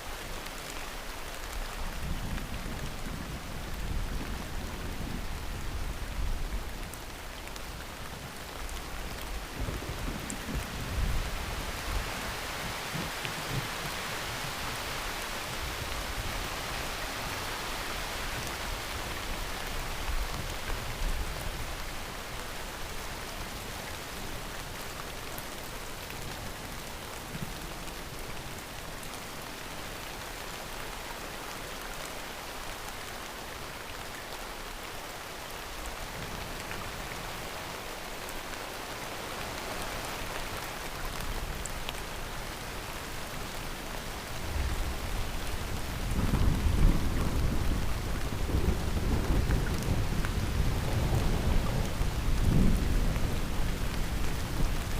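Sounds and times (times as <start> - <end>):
heavy rain falling: 0.0 - 54.9.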